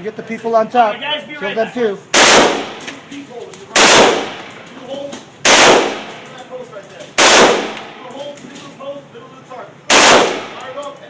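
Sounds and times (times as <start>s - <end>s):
gunshots with echo: 2.2s - 2.8s, 3.7s - 4.4s, 5.4s - 6.2s, 7.2s - 7.8s, 9.9s - 10.6s.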